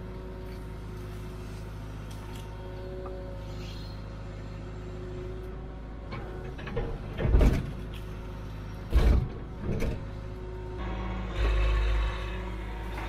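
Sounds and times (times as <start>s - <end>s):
excavator diesel engine running: 0.0s - 13.0s
heavy clunks: 6.1s - 7.9s, 8.8s - 10.2s.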